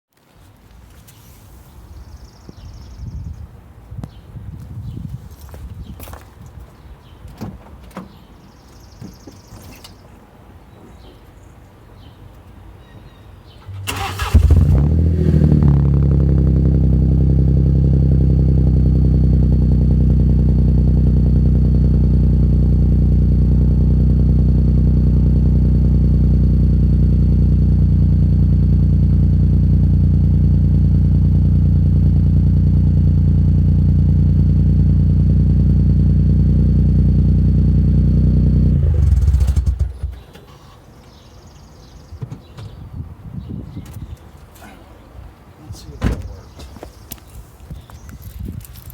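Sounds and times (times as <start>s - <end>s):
car engine idling: 13.6s - 40.8s
starter cranking engine: 13.7s - 16.4s, 38.6s - 40.2s.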